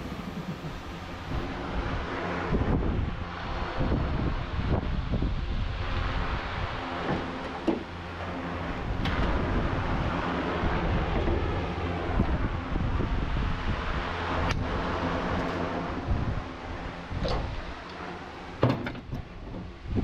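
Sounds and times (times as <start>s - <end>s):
mechanical hum of motor: 0.0s - 20.0s.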